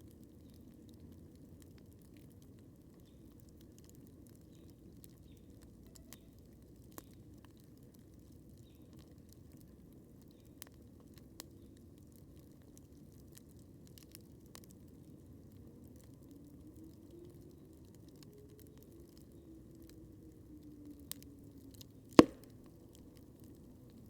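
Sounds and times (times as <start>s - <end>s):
campfire crackling: 0.1s - 14.8s, 22.2s - 24.0s.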